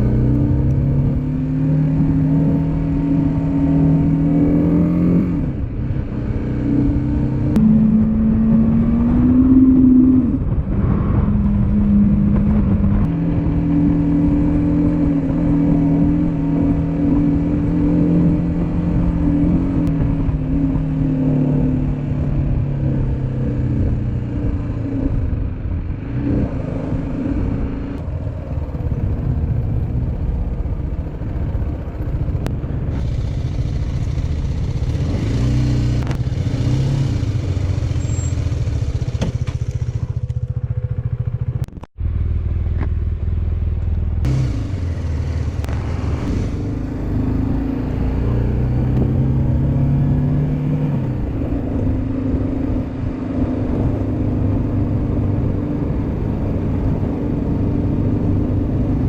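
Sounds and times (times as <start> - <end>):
motorcycle engine running: 26.7 - 59.0
steady rushing noise: 44.2 - 48.3.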